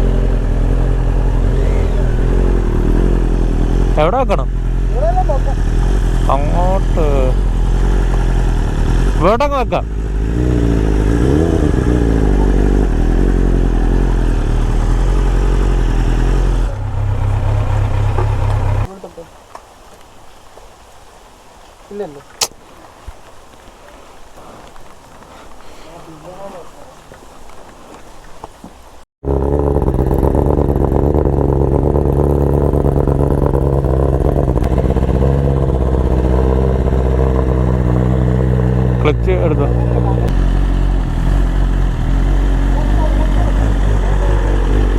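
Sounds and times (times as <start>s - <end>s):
motorcycle engine idling: 0.0s - 9.3s, 9.9s - 18.9s, 29.2s - 44.9s.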